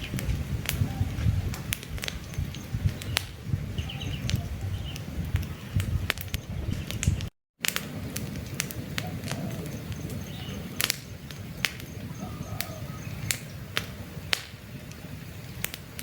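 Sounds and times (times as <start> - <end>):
campfire crackling and popping: 0.0 - 16.0
birds chirping: 0.8 - 7.3, 8.8 - 14.0.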